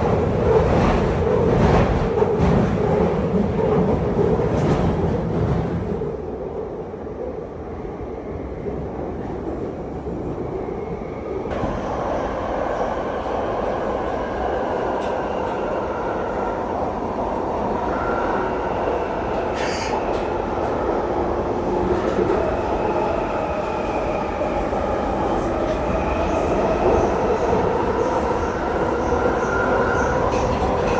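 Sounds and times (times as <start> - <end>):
underground train rumbling: 0.0 - 30.9.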